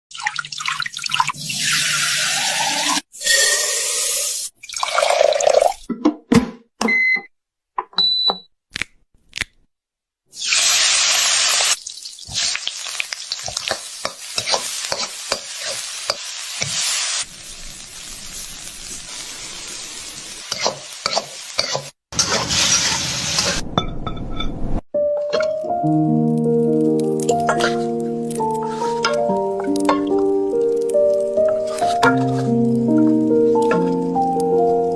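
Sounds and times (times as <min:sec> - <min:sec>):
food sizzling: 0:10.3 - 0:23.6, 0:26.3 - 0:34.9.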